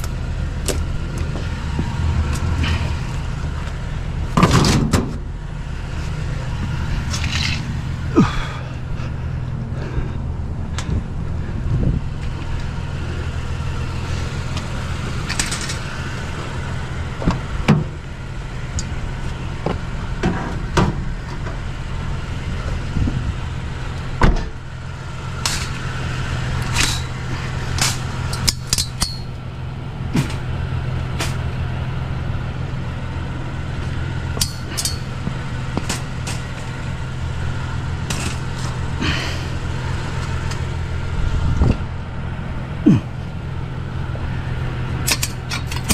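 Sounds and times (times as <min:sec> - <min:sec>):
steady low hum: 0:00.0 - 0:45.9
metallic clanks and knocks: 0:04.3 - 0:05.2, 0:27.8 - 0:29.4, 0:34.4 - 0:36.6, 0:45.0 - 0:45.9.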